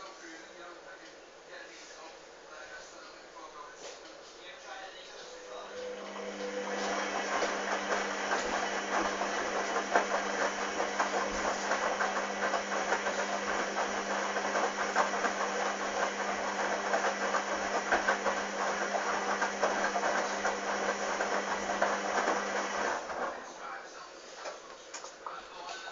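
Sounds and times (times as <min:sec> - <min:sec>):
drain pump humming: 0:05.6 - 0:23.4.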